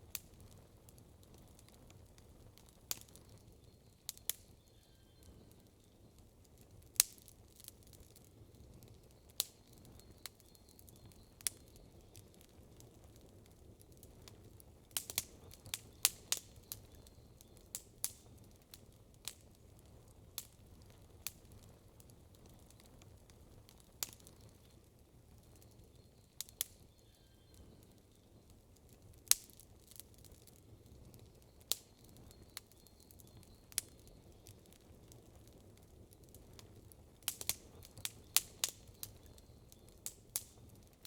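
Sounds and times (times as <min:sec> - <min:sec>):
campfire crackling and popping: 0:00.0 - 0:41.0.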